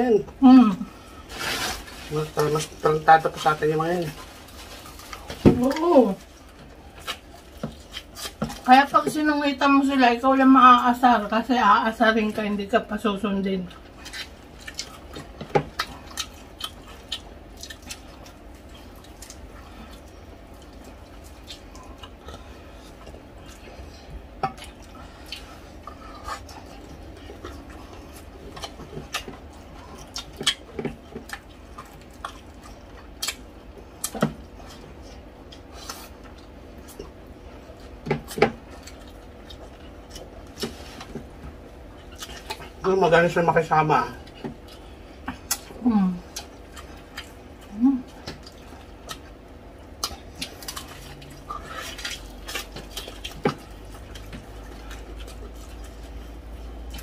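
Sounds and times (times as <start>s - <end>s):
people chewing and smacking: 0.3s - 9.8s, 13.6s - 57.0s.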